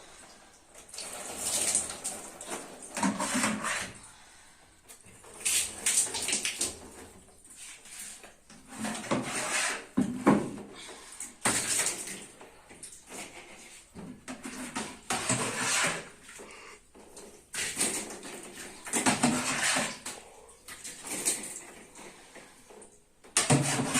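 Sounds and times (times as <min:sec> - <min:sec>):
household items clattering: 0:08.6 - 0:23.9.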